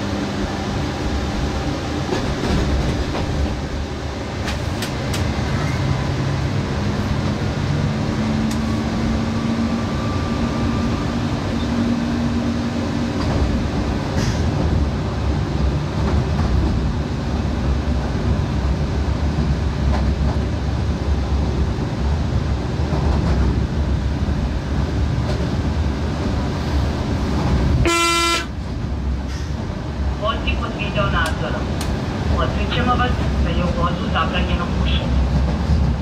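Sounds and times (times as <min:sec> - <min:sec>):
train wheels rumbling on track: 0:00.0 - 0:36.0
train horn blast: 0:27.8 - 0:28.6.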